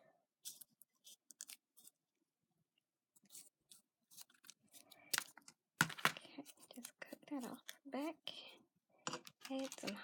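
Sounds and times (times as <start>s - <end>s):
paper pieces clicking and rustling: 9.4s - 10.0s.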